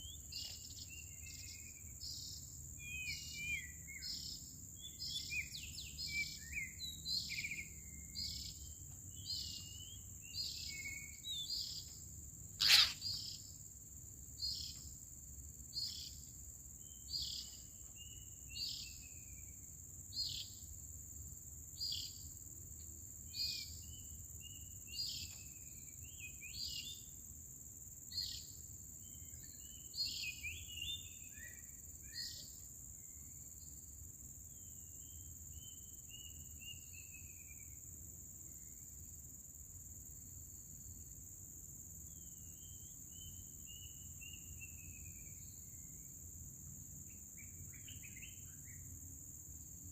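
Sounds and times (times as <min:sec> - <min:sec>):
high-pitched insect drone: 0:00.0 - 0:13.6
bird calling sharp notes: 0:12.6 - 0:13.1
bird twittering: 0:12.6 - 0:13.4.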